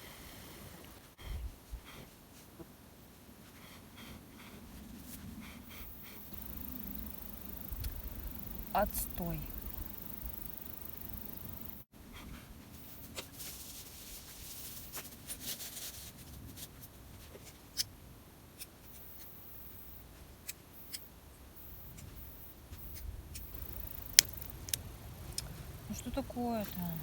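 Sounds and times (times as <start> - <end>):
kindling snapping: 22.9 - 25.5.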